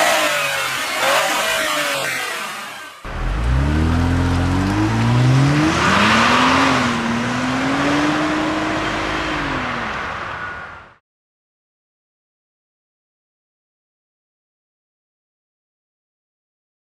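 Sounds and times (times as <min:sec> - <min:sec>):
car engine accelerating: 0:00.0 - 0:10.6.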